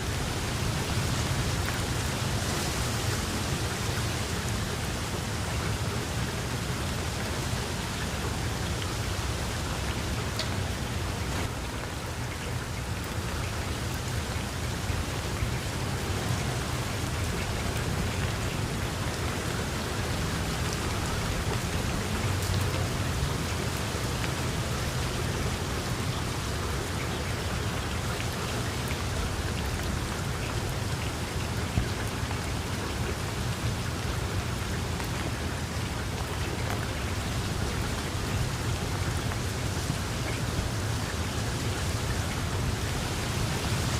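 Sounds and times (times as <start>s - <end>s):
heavy rain hiss: 0.0s - 43.9s
raindrop ticks: 9.8s - 13.6s.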